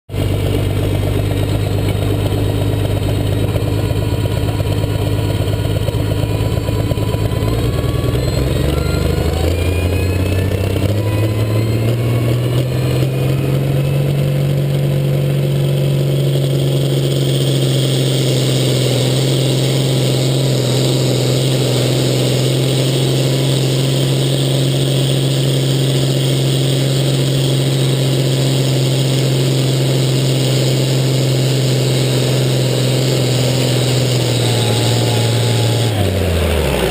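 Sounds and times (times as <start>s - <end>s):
tractor engine revving: 0.0s - 36.9s.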